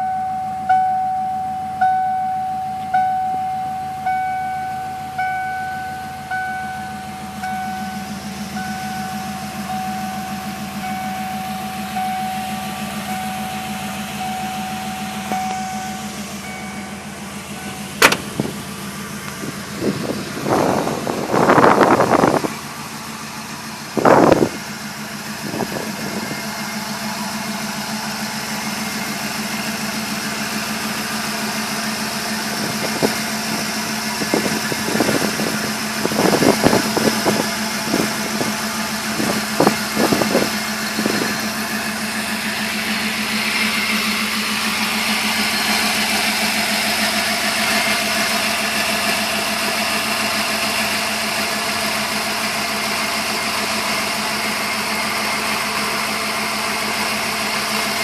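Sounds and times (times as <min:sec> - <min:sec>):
truck engine idling: 0:00.0 - 0:58.0
short knocks: 0:18.0 - 0:18.5.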